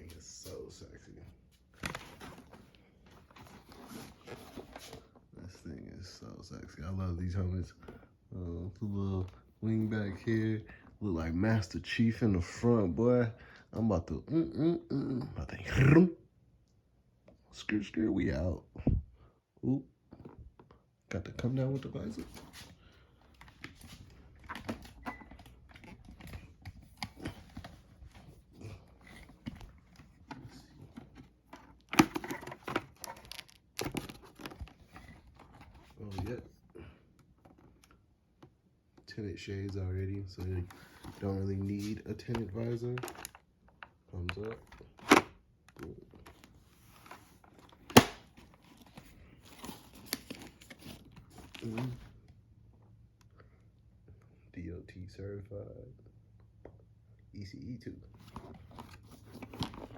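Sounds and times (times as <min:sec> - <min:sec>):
helmet rustling and crinkling: 0:00.0 - 0:05.3, 0:21.5 - 0:37.8, 0:40.2 - 0:43.8, 0:44.4 - 0:52.2, 0:58.1 - 0:59.9
plastic helmet clicks and knocks: 0:29.4 - 0:35.8, 0:47.7 - 0:48.9.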